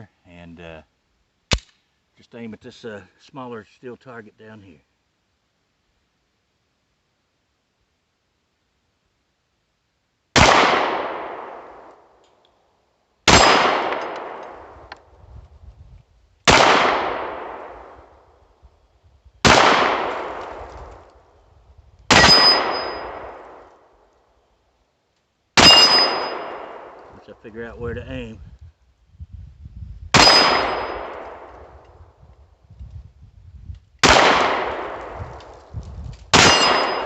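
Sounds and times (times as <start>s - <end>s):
pistol shots with ringing: 10.4s - 11.9s, 13.3s - 14.4s, 22.1s - 23.6s, 25.6s - 27.0s, 30.2s - 31.5s, 34.0s - 35.0s, 36.3s - 37.0s.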